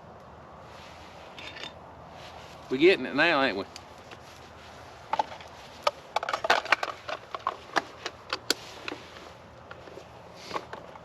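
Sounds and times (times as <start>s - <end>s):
campfire crackling and popping: 3.7s - 4.2s.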